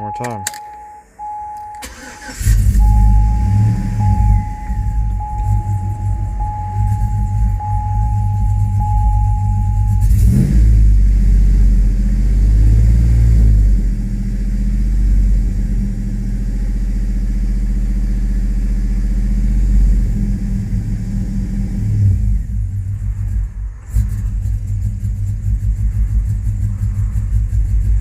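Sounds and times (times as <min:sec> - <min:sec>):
steady high tone: 0:00.0 - 0:10.2
truck engine running rough: 0:01.2 - 0:28.0.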